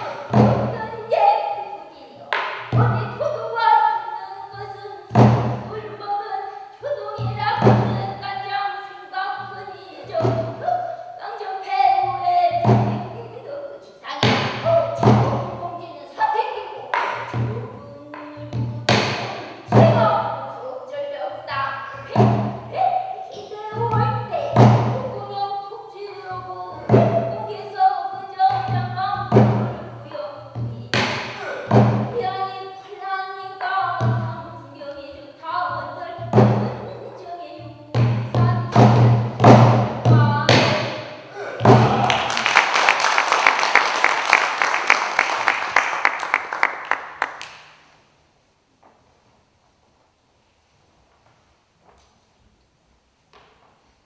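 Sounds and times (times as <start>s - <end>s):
barrel drum strikes: 0.0s - 0.9s, 5.1s - 5.7s, 7.2s - 8.2s, 12.6s - 13.2s, 14.2s - 15.6s, 18.5s - 20.4s, 22.0s - 22.7s, 23.7s - 25.2s, 26.8s - 27.4s, 28.5s - 29.9s, 30.6s - 32.3s, 37.9s - 42.3s
person singing long notes: 17.0s - 20.5s, 21.4s - 39.2s
audience applauding: 41.6s - 47.7s
sharp claps close by: 41.6s - 47.9s.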